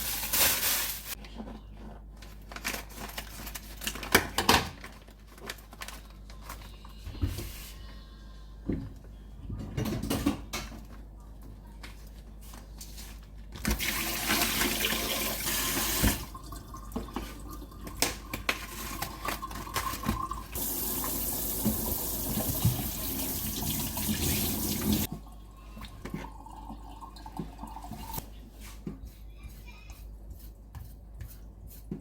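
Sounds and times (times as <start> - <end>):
tap running into a sink: 13.7 - 16.4, 19.9 - 25.1.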